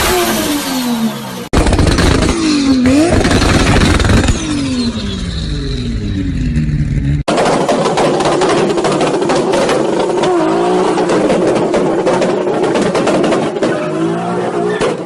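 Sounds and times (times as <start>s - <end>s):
car engine revving: 0.0s - 15.0s
exhaust pops and bangs: 1.5s - 4.8s, 7.3s - 15.0s.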